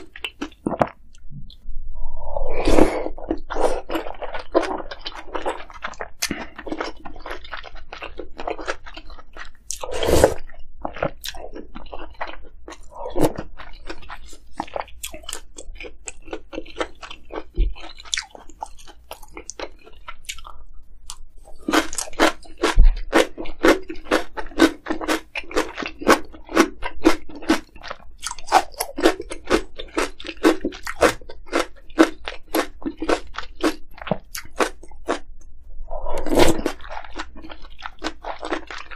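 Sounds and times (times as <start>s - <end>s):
crunchy chewing: 0.0s - 1.6s, 2.7s - 35.4s, 36.0s - 38.9s.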